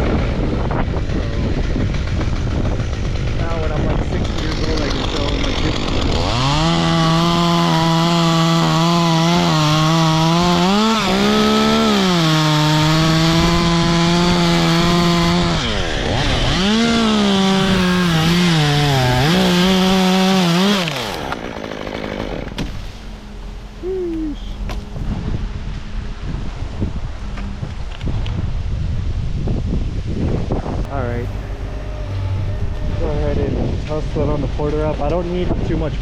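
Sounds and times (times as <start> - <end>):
chainsaw cutting wood: 0.0 - 23.3
wind: 0.0 - 36.0
rustling branches: 12.5 - 34.7.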